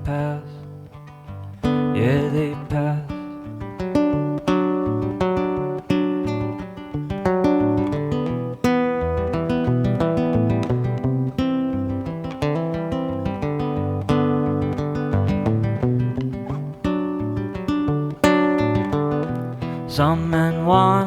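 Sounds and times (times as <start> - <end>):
acoustic guitar strummed and picked: 0.0 - 21.0.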